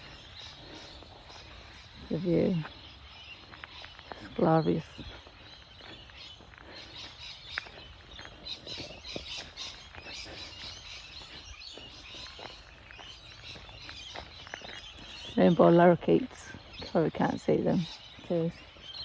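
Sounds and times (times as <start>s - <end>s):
birds chattering and chirping: 0.0s - 19.0s.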